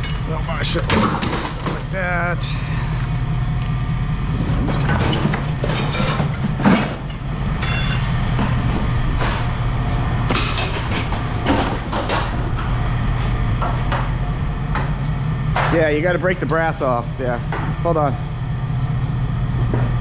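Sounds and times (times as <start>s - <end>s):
scrap metal clanking: 0.0s - 3.2s, 4.4s - 9.6s
low engine hum: 0.0s - 20.0s.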